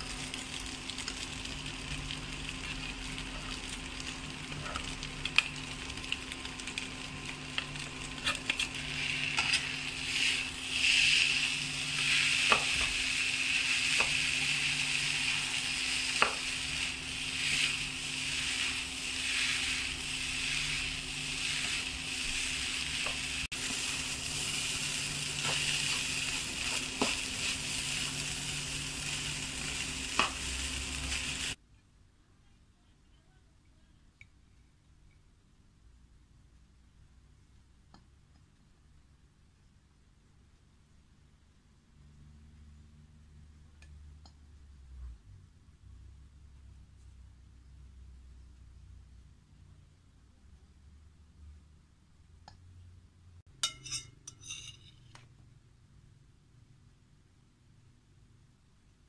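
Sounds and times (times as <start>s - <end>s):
rice sizzling in a pan: 0.0s - 31.6s
spatula scraping and tapping pan: 8.1s - 11.3s, 11.9s - 13.0s, 13.6s - 24.0s, 25.4s - 27.6s, 53.6s - 55.3s.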